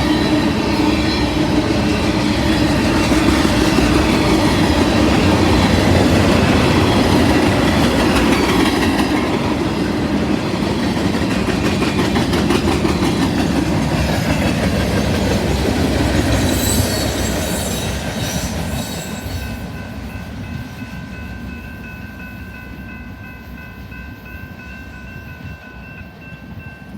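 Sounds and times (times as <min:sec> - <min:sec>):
freight train rumbling past: 0:00.0 - 0:26.9
wheels clattering on rails: 0:00.9 - 0:19.5.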